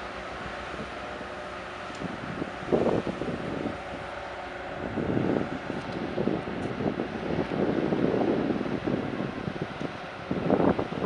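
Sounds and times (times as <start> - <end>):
wind buffeting the microphone: 0.0 - 11.0.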